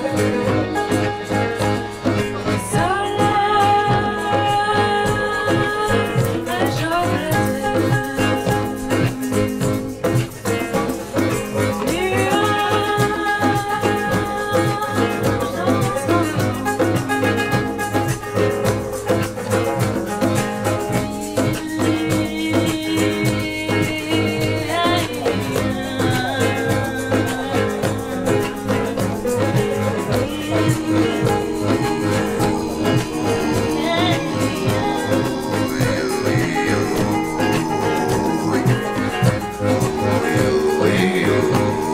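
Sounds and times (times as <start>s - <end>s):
band playing a song: 0.0s - 41.9s.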